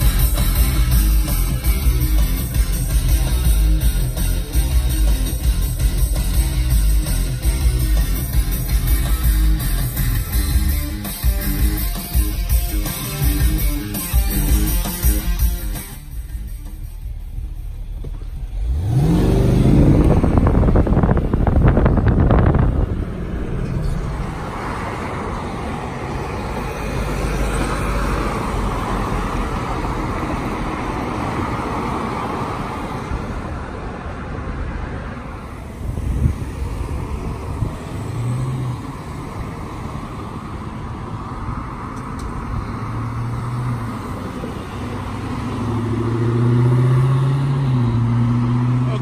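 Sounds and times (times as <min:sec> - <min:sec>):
road traffic rumble: 0:00.0 - 0:49.0.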